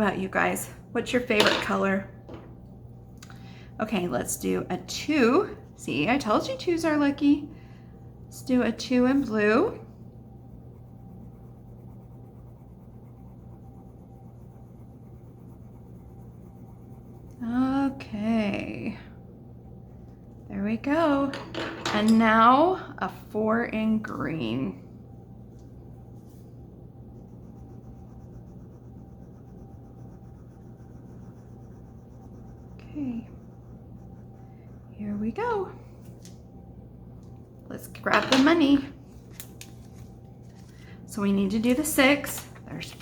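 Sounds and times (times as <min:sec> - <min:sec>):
low hum: 0:00.0 - 0:43.0
pencil scribbling on paper: 0:10.5 - 0:17.4, 0:27.1 - 0:35.1.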